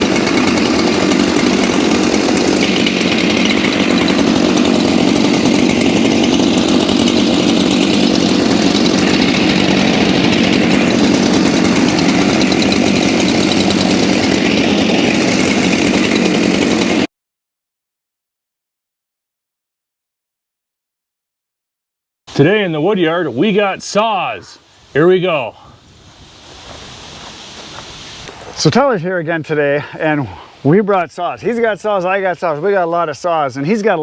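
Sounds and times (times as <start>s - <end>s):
chainsaw cutting logs: 0.0s - 17.1s.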